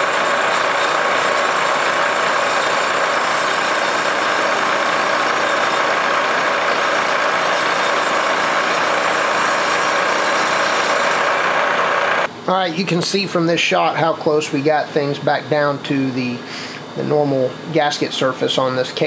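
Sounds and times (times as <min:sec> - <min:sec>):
milling machine running: 0:00.0 - 0:12.3.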